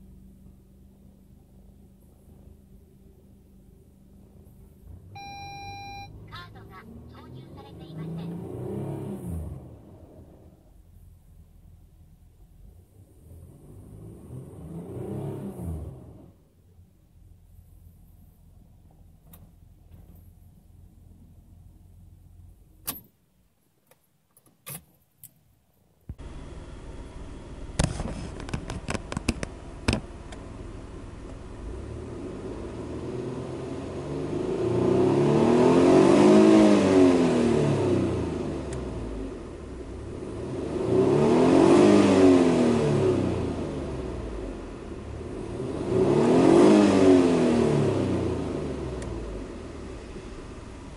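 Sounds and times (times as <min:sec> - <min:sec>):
car engine idling: 0:00.0 - 0:08.4, 0:09.6 - 0:14.0, 0:15.9 - 0:23.5, 0:25.9 - 0:34.6, 0:38.0 - 0:41.1, 0:42.8 - 0:46.2, 0:47.7 - 0:50.9
engine revving: 0:04.9 - 0:10.5, 0:12.6 - 0:16.4, 0:26.1 - 0:50.9.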